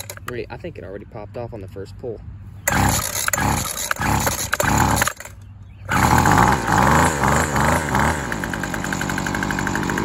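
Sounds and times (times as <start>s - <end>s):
string trimmer engine starting and idling: 0.0s - 0.3s, 2.6s - 10.0s.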